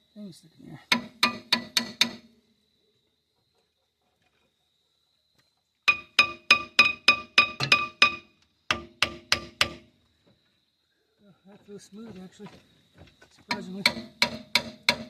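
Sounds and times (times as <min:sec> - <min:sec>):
hammer striking steel: 0:00.9 - 0:02.2, 0:05.9 - 0:09.8, 0:13.5 - 0:15.0.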